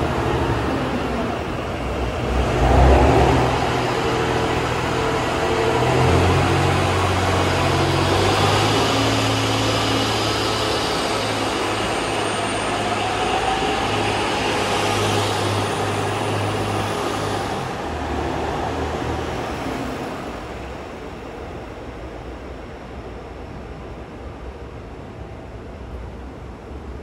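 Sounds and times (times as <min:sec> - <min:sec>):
electric train running: 0:00.0 - 0:21.0
faint rising whine: 0:00.0 - 0:23.1.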